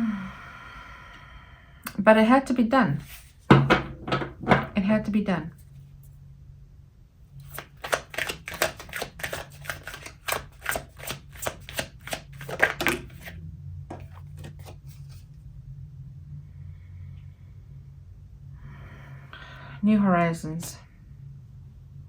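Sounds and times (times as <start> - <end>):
cards being shuffled: 7.4 - 15.2
card taps: 7.5 - 13.3.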